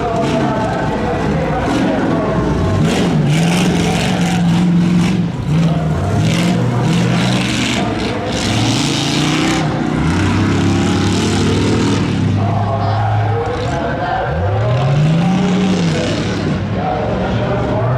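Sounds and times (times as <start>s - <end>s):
pickup truck engine under load: 0.0s - 12.4s.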